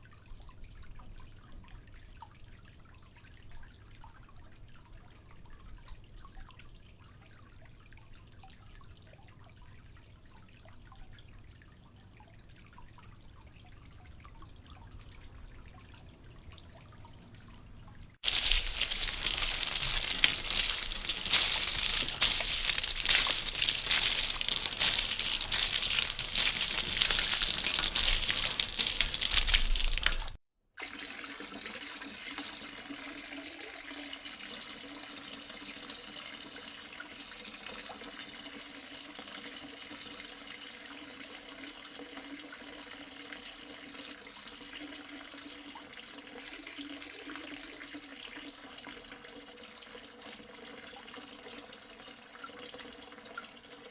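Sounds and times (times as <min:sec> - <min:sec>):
quieter flow of water: 0:00.0 - 0:30.4
loud running water: 0:18.2 - 0:30.4.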